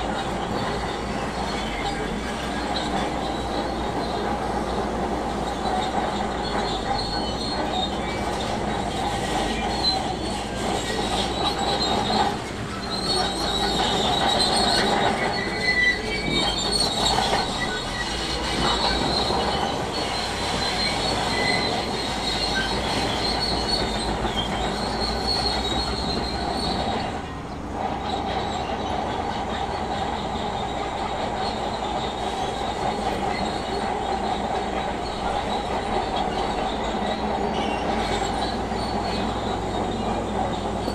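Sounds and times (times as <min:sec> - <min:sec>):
bulldozer engine running: 0:00.0 - 0:40.9
squealing grinding steel tracks: 0:00.0 - 0:40.9.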